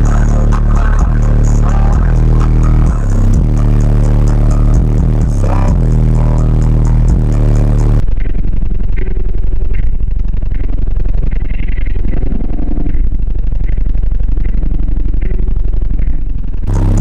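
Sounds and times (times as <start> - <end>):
loud music with heavy bass: 0.0 - 8.0, 16.7 - 17.0.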